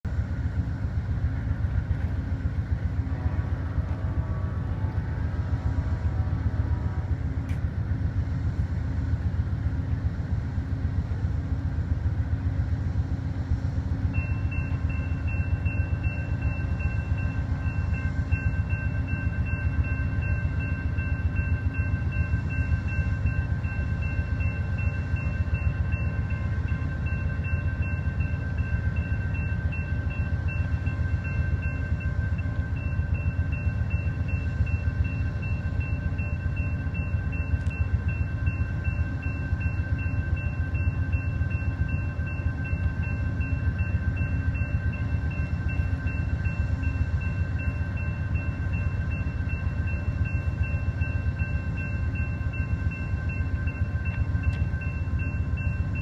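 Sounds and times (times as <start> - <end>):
train rumbling past: 0.0 - 56.0
crossing signal bell ringing: 14.1 - 56.0.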